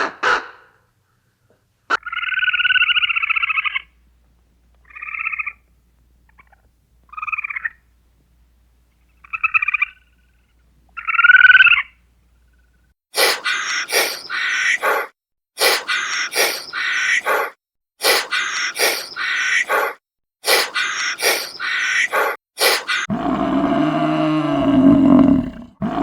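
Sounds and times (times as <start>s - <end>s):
animal calling with quavering buzzy tone: 2.0s - 4.0s, 4.8s - 5.7s, 6.3s - 8.0s, 8.9s - 23.9s
harsh noisy animal calls: 13.2s - 26.0s.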